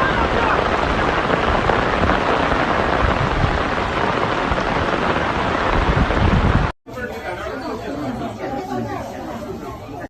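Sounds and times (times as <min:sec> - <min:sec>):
water rushing and splashing: 0:00.0 - 0:06.8.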